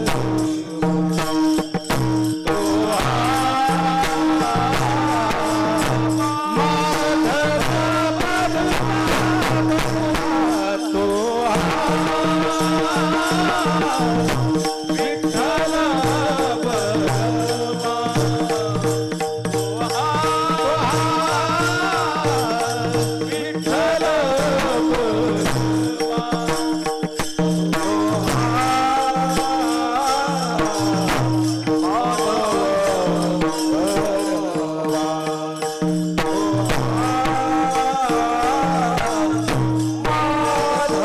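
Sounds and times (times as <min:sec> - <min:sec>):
drum pattern: 0:00.0 - 0:35.2
hand cymbals jingling: 0:00.0 - 0:41.0
gliding vocal melody: 0:28.8 - 0:35.8.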